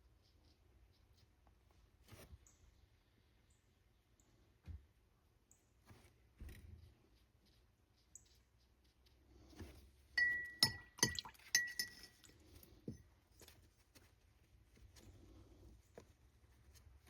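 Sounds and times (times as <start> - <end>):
hard object tapping glass jar: 10.2 - 12.3.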